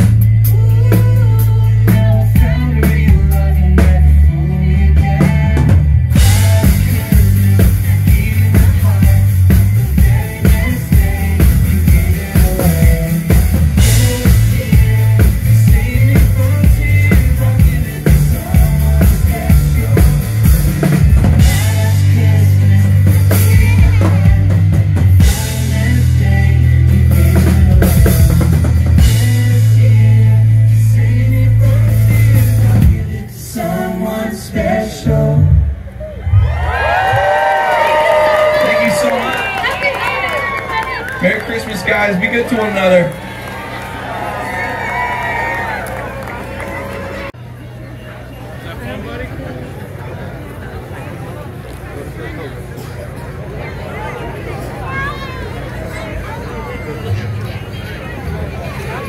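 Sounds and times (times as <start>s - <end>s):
amplified band music: 0.0s - 35.8s
sustained bass notes: 0.0s - 38.5s
bass drum and snare: 5.0s - 22.0s.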